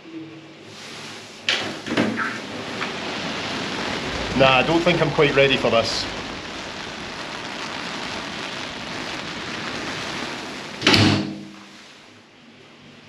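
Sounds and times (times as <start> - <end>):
heavy rain and wind: 0.0 - 13.0
door slamming shut: 10.8 - 11.5.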